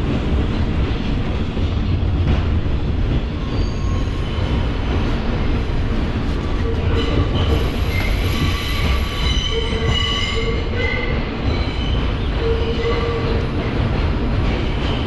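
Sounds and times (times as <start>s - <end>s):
subway train rumbling: 0.0s - 15.0s
steel wheels squealing on rail: 3.4s - 4.8s, 6.5s - 13.6s.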